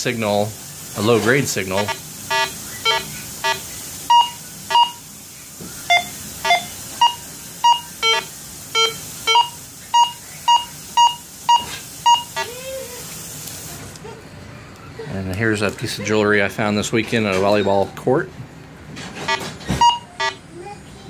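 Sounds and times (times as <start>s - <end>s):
metal detector beeping: 1.8s - 5.0s, 5.9s - 12.4s, 19.3s - 20.4s.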